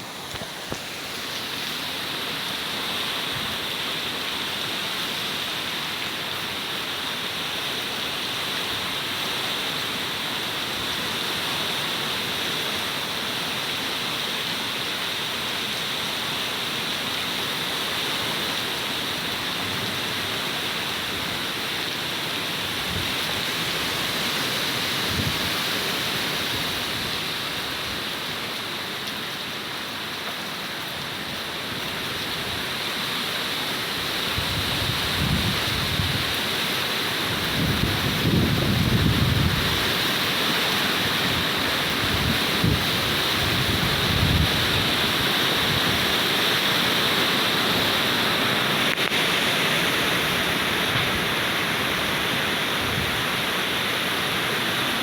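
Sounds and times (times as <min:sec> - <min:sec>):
heavy rain hissing: 0:00.0 - 0:55.0
wind gusts: 0:37.2 - 0:55.0.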